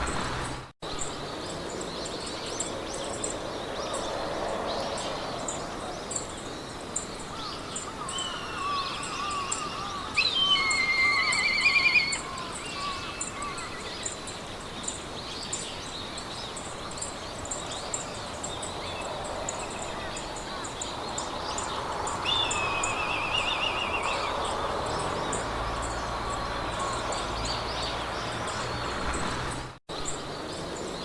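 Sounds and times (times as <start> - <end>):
birds singing: 0.0 - 31.0
loud trilling birdsong: 0.0 - 31.0
wind in grass: 0.0 - 31.0
high insect chirp: 2.2 - 15.1.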